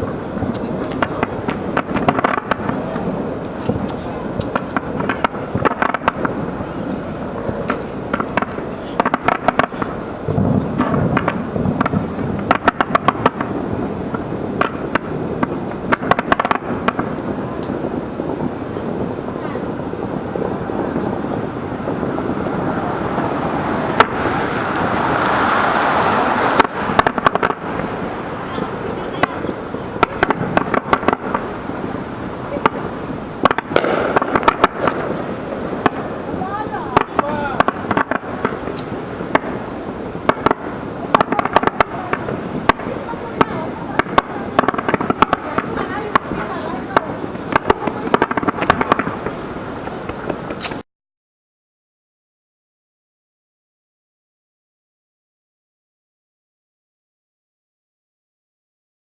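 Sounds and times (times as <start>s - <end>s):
fireworks bangs and crackles: 0.0s - 50.8s
steady background noise: 0.0s - 50.8s
deep rumble: 16.7s - 34.2s.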